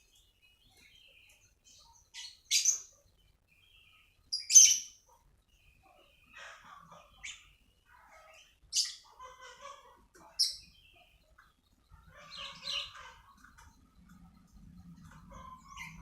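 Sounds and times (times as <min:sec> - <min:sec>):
songbirds chirping and warbling: 0:00.0 - 0:16.0
loud sharp bird calls: 0:03.7 - 0:16.0.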